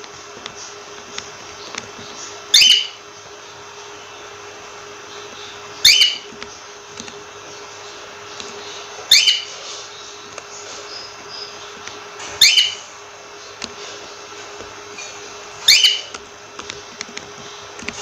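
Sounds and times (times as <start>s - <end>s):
faint steady hum: 0.0s - 18.0s
cockatiel whistled call: 2.5s - 3.0s, 5.8s - 6.3s, 9.1s - 9.5s, 12.4s - 12.8s, 15.6s - 16.1s.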